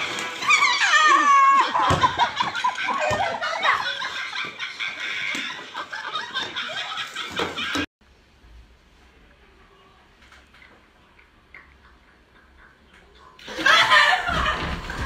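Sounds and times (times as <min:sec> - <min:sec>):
people falling on wet concrete: 0:00.0 - 0:07.9, 0:13.5 - 0:15.0
people laughing: 0:00.4 - 0:07.9, 0:11.5 - 0:15.0.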